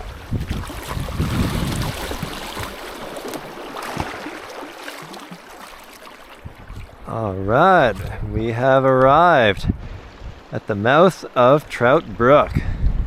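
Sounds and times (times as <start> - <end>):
wind buffeting microphone: 0.0 - 3.1, 6.4 - 10.6, 12.0 - 13.0
river water rushing and splashing: 0.0 - 12.4.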